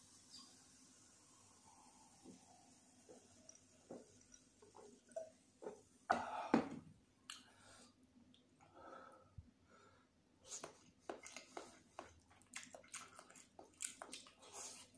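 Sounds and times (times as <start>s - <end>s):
wet chewing: 10.6s - 14.9s.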